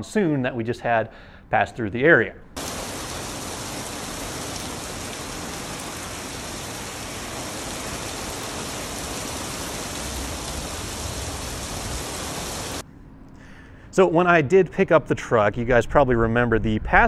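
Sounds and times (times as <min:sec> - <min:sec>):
heavy rain on concrete: 0:02.6 - 0:12.8.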